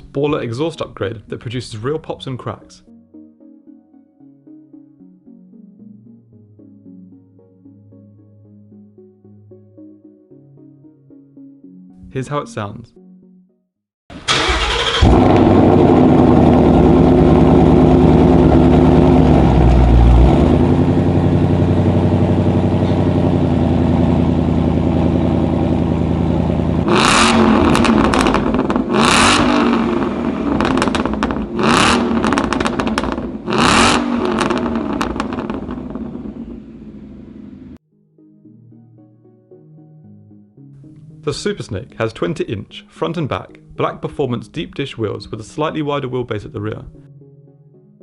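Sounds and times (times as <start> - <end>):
car engine starting and idling: 14.1 - 37.8
exhaust crackle: 14.1 - 37.8
car engine revving: 14.2 - 37.8.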